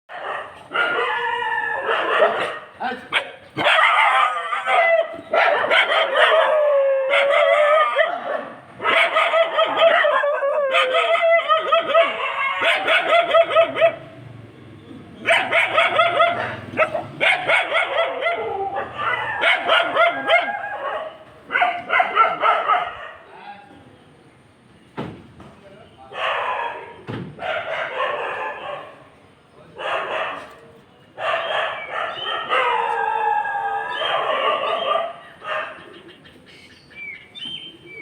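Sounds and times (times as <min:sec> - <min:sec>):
sharp barking animal calls: 0:00.1 - 0:06.5, 0:07.1 - 0:14.1, 0:15.2 - 0:23.3, 0:31.2 - 0:33.0, 0:33.8 - 0:36.3.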